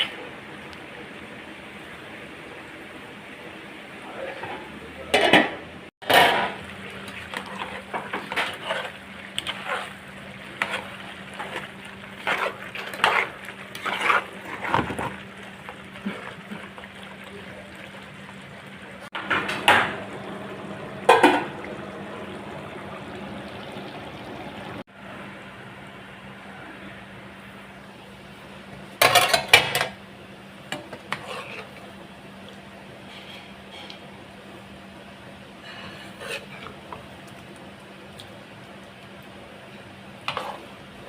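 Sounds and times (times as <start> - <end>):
dishes and utensils clattering: 21.1 - 21.6, 29.0 - 30.0.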